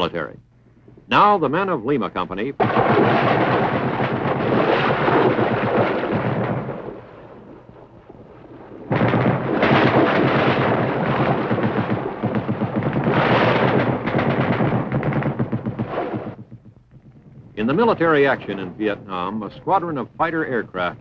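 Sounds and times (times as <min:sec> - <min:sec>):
explosions: 0:02.4 - 0:16.6, 0:17.3 - 0:21.0
gunfire: 0:02.6 - 0:16.7.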